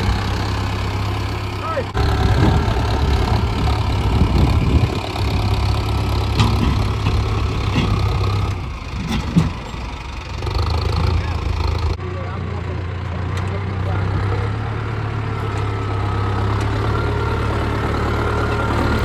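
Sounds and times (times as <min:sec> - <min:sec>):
tractor diesel engine running: 0:00.0 - 0:19.0
short knocks: 0:06.2 - 0:09.8.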